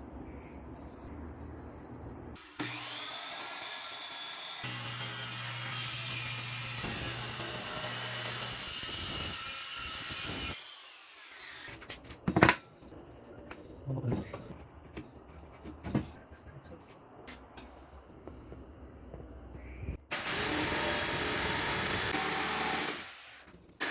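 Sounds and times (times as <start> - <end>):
power tool running on wood: 4.6 - 9.0.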